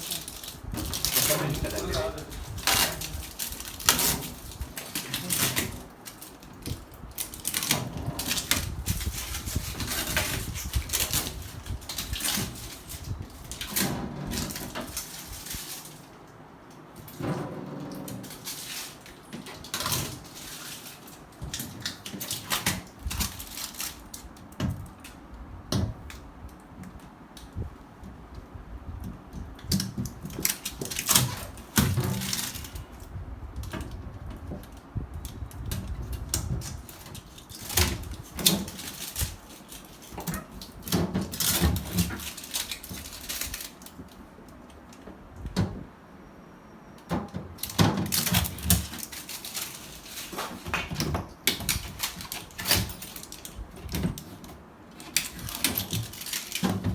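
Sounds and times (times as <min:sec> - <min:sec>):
objects being handled clattering: 0:00.0 - 0:26.0, 0:29.1 - 0:45.8, 0:47.1 - 0:56.9.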